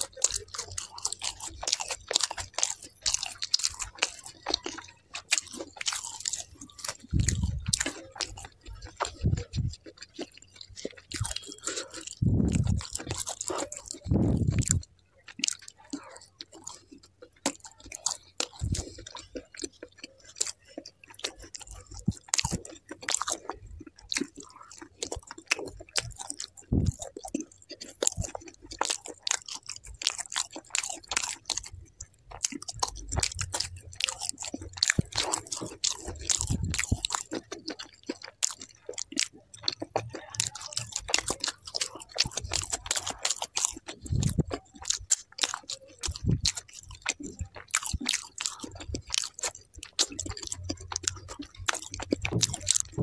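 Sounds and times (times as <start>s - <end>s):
man chewing and biting: 0.0s - 53.0s
mouth clicks: 0.0s - 53.0s.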